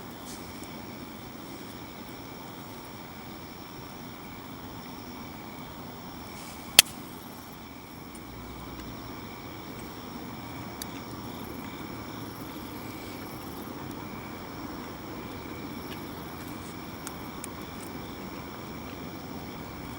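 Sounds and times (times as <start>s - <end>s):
insects trilling: 0.0s - 19.9s
sharp snap: 6.7s - 7.0s
faint ticks: 8.1s - 9.0s, 10.6s - 11.8s, 15.2s - 19.9s.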